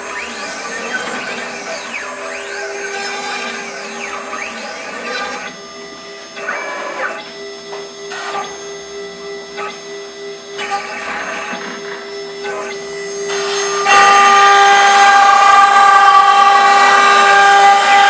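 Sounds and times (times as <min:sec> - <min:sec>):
stepper motors whining: 0:00.0 - 0:18.0
spindle humming: 0:12.1 - 0:18.0.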